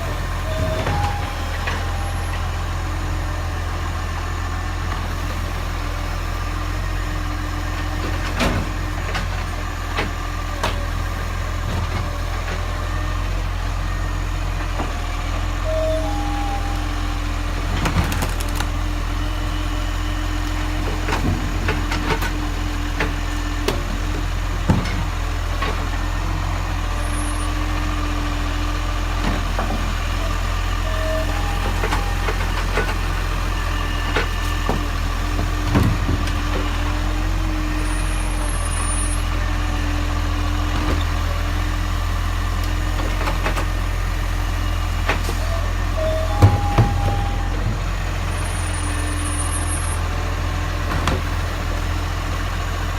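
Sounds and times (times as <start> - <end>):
garbage truck engine running: 0.0 - 52.9.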